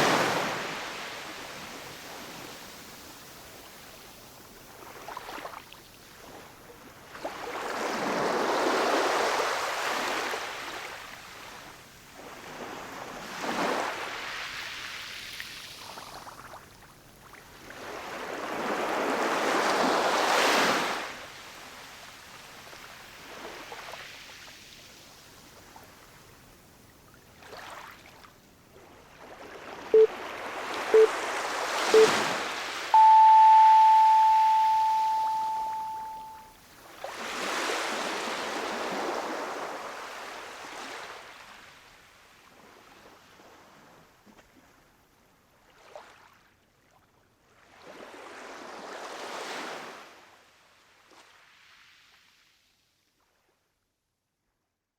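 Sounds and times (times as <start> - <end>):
short timer beeps: 32.0 - 32.2, 33.0 - 36.4
ocean waves washing ashore: 33.0 - 36.4.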